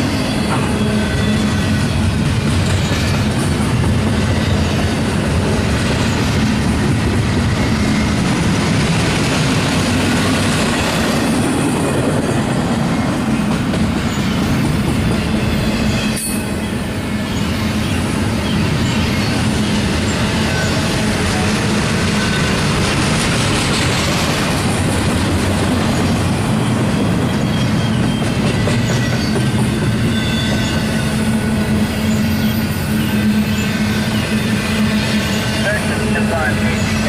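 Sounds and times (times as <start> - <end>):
high wheel squeals: 0.0 - 6.4, 12.8 - 23.0, 25.8 - 37.0
steel wheels on rail: 0.0 - 37.0.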